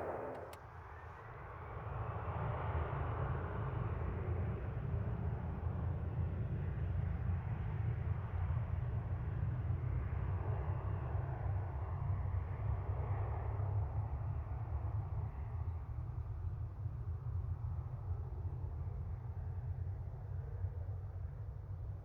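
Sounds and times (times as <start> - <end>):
distant jet engines rumbling: 0.0 - 0.6.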